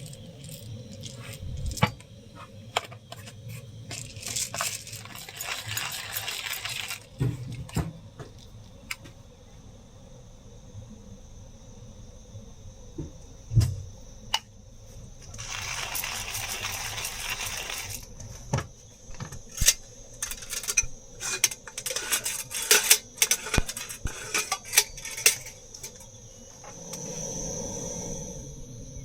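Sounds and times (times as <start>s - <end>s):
insects buzzing: 0.0s - 29.0s
metal cookware clinking: 19.5s - 26.0s.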